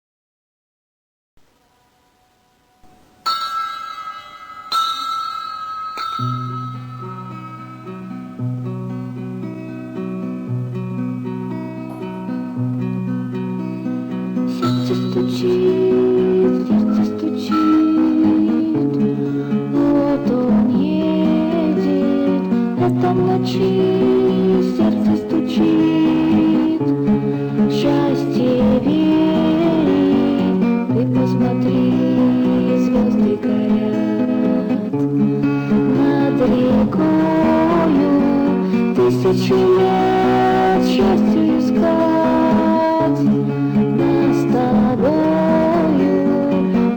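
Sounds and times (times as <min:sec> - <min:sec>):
acoustic guitar picking: 0:02.9 - 0:46.9.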